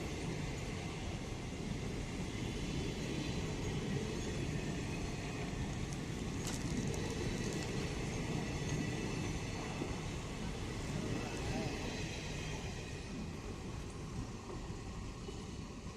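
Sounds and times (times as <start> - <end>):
train rumbling on rails: 0.0 - 15.9
train clatter: 3.6 - 13.2.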